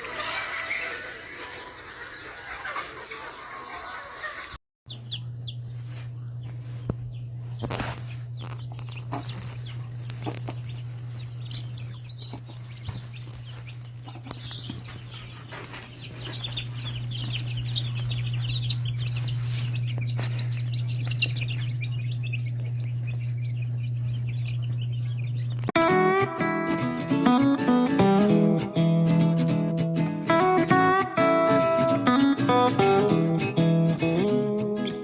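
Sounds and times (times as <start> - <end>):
chickens clucking and squawking: 0.0 - 25.7
steady low hum: 4.9 - 25.7.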